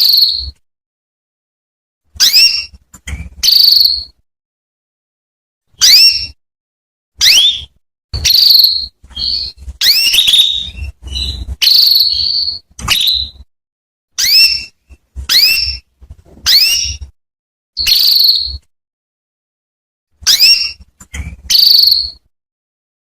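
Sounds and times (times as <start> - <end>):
canary calling: 0.0 - 0.6, 2.2 - 4.2, 5.8 - 6.4, 7.2 - 13.4, 14.2 - 15.9, 16.5 - 17.1, 17.8 - 18.6, 20.2 - 22.3.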